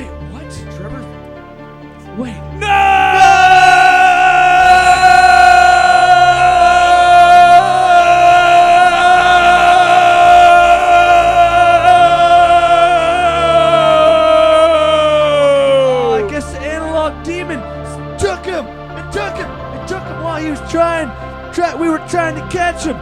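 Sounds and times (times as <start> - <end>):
backing music: 0.0 - 23.0
person singing long high note: 2.5 - 16.6.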